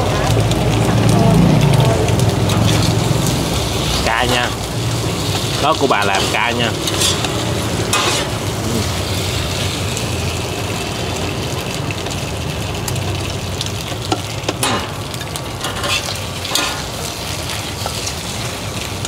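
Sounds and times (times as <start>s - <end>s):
batter sizzling in oil: 0.0s - 19.0s.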